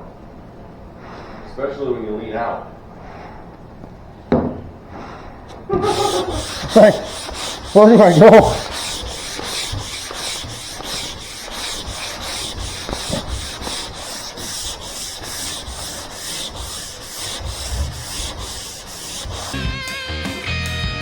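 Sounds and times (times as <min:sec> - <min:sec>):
hand sanding with sandpaper: 0:05.7 - 0:19.9.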